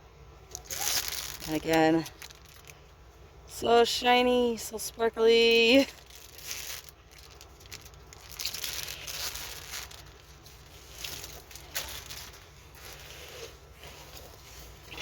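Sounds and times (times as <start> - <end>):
plastic film crinkling: 0.5 - 2.9, 3.9 - 15.0.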